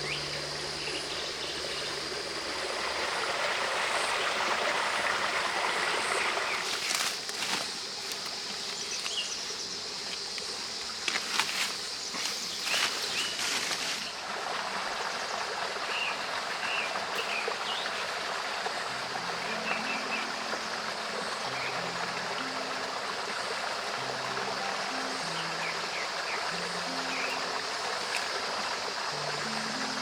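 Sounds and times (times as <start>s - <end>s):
soft low background music: 0.0s - 7.6s, 18.0s - 30.0s
flowing water: 0.0s - 30.0s
small birds chirping: 6.0s - 13.6s.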